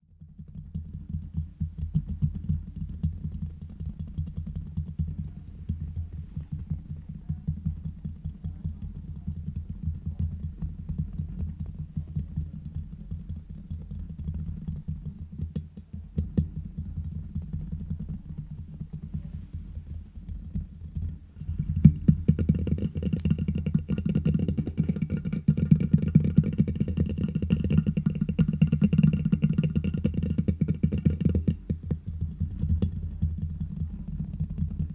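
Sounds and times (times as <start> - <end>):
tapping on microphone: 1.9 - 34.9.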